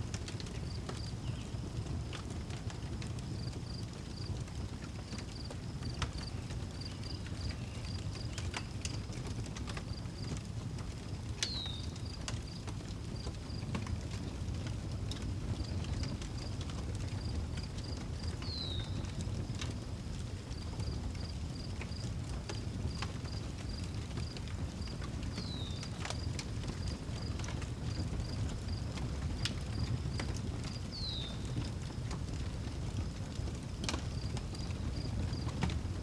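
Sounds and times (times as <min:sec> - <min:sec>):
wood fire crackling and popping: 0:00.0 - 0:36.0.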